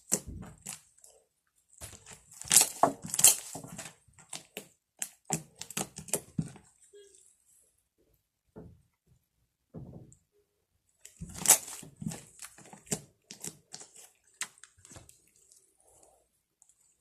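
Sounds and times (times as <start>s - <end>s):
slime squelching and popping: 0.0s - 7.0s, 11.0s - 16.0s.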